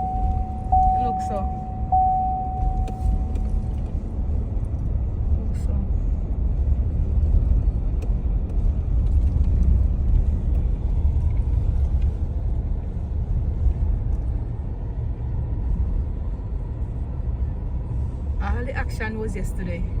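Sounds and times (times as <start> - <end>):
car interior road and engine noise: 0.0 - 20.0.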